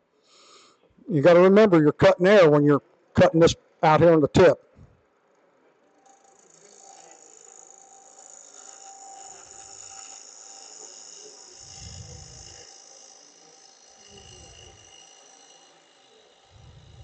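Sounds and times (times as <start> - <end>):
wood lathe whining: 5.9 - 17.0
gouge cutting wood rumble: 6.3 - 17.0.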